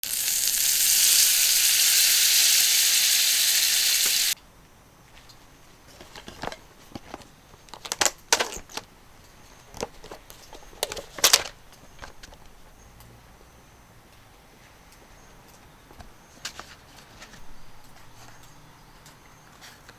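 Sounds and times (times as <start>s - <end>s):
chicken sizzling in a frying pan: 0.0s - 4.4s.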